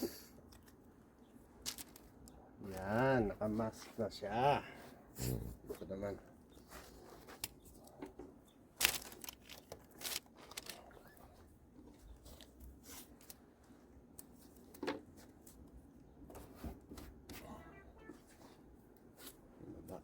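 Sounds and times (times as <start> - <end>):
paper crinkling: 1.5 - 3.1, 8.7 - 15.7
tape tearing: 8.8 - 10.9.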